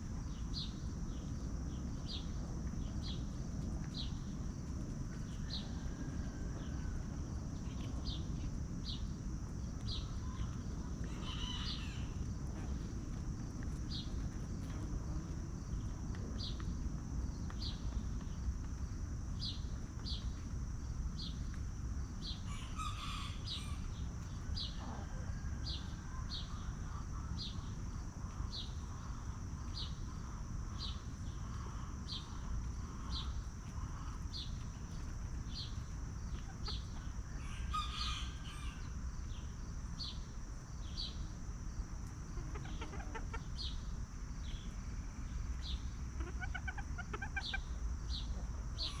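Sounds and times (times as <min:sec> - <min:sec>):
chickens clucking: 0:24.7 - 0:27.4, 0:30.9 - 0:38.9, 0:42.0 - 0:43.8, 0:46.1 - 0:49.0.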